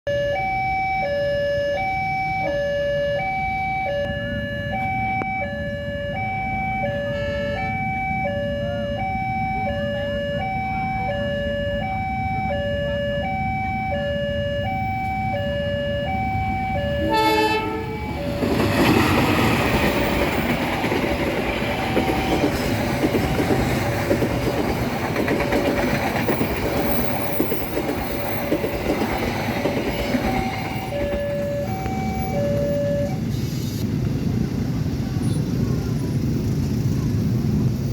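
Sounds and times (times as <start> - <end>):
level crossing alarm chime: 0.1 - 18.7, 20.4 - 23.7, 29.8 - 33.2
train horn blast: 7.0 - 7.8, 16.9 - 18.2
train wheels rumbling and clacking: 16.3 - 37.9.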